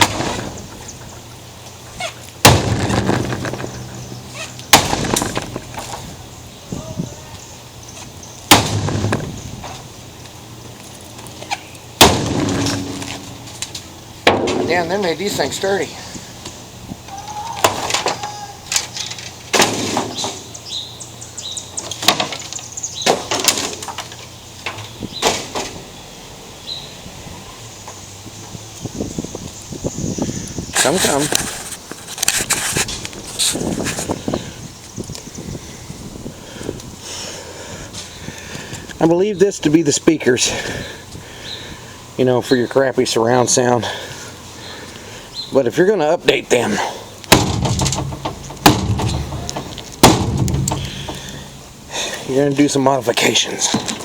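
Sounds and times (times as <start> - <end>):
parts rattling and clattering: 0.0 - 6.6, 8.0 - 16.5, 46.6 - 52.7
sledgehammer hitting a television: 2.4 - 6.1, 8.5 - 9.3, 12.0 - 13.5, 47.3 - 51.5.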